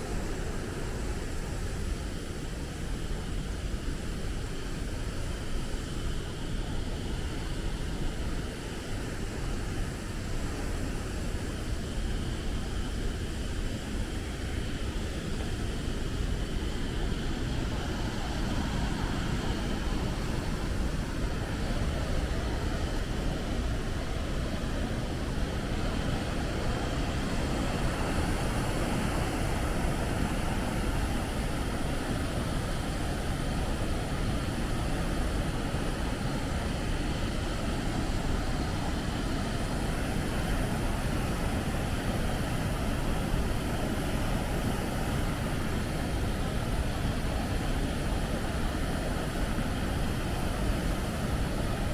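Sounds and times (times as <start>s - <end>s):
waterfall roar: 14.8s - 51.9s.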